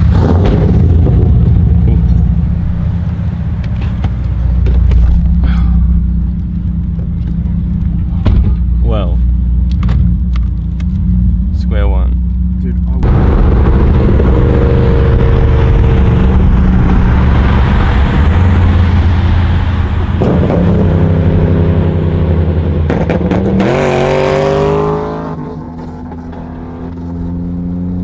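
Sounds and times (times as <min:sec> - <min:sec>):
car engine accelerating hard: 0:09.7 - 0:28.0.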